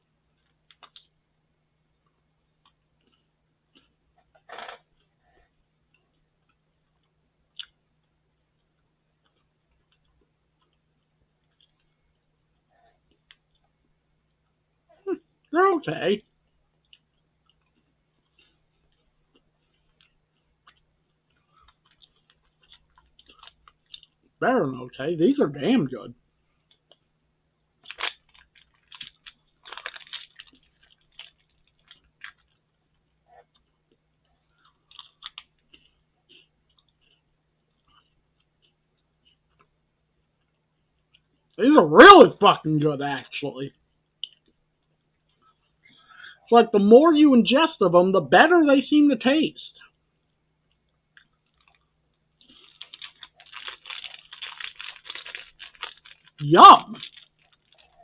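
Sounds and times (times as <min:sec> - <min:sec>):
crunching and chewing wafer: 0:16.8 - 0:24.4, 0:27.7 - 0:41.5, 0:50.6 - 0:58.0.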